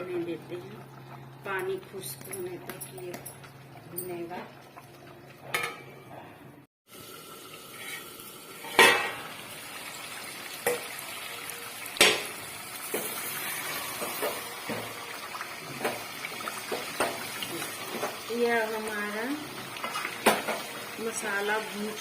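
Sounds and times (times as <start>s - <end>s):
metal clanks against pot: 5.5s - 6.0s, 8.6s - 9.2s, 12.0s - 13.1s
food sizzling in a pot: 6.9s - 22.0s.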